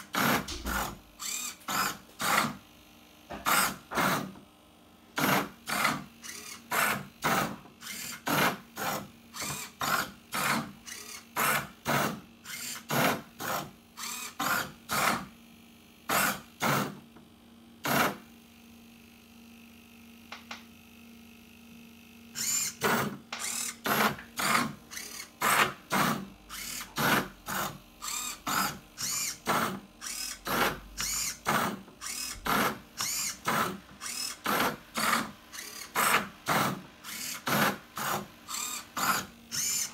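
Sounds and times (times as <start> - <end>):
robot motor whirs: 0.0 - 2.6, 3.4 - 4.3, 5.2 - 15.3, 22.3 - 39.9.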